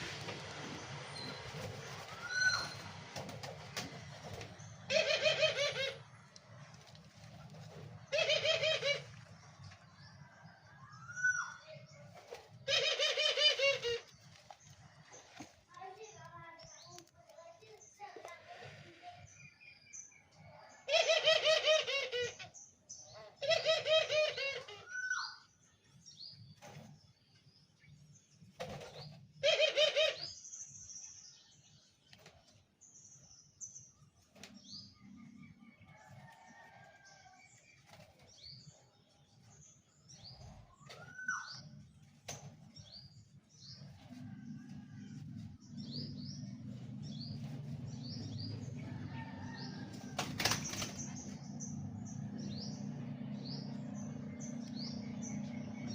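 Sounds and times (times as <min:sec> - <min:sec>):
doves cooing: 0:00.0 - 0:09.4, 0:12.4 - 0:15.4, 0:20.8 - 0:22.5, 0:23.3 - 0:25.4, 0:29.4 - 0:30.4.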